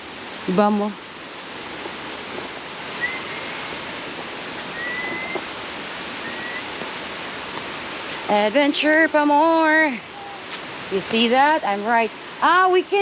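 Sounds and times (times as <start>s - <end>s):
flowing river water: 0.0s - 13.0s
faint high whistles: 3.0s - 3.7s, 4.7s - 5.5s, 6.2s - 6.8s.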